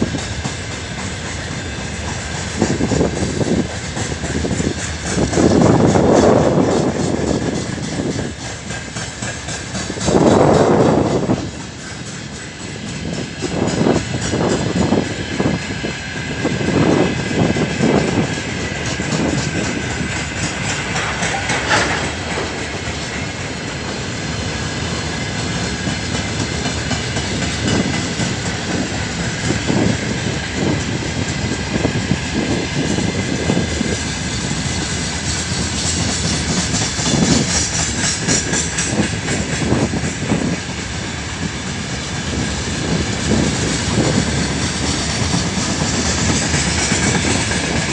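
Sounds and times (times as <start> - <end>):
train rumble: 0.0 - 47.9
train wheels clattering: 0.0 - 47.9.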